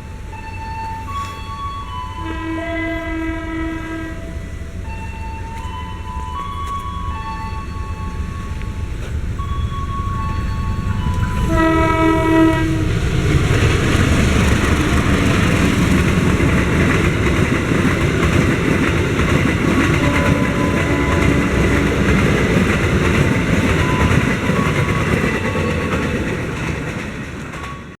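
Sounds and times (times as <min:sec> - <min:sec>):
train rumbling past: 0:00.0 - 0:28.0
train horn: 0:02.1 - 0:04.8, 0:11.0 - 0:13.4, 0:19.6 - 0:22.7.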